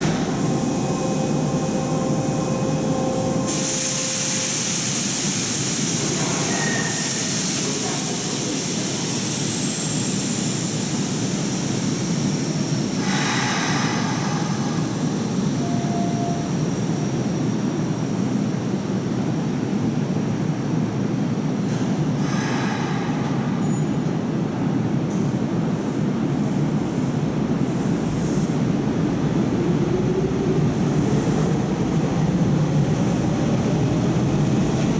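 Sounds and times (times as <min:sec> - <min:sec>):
electric train running: 0:00.0 - 0:06.4
high hissing squeal: 0:00.0 - 0:07.5.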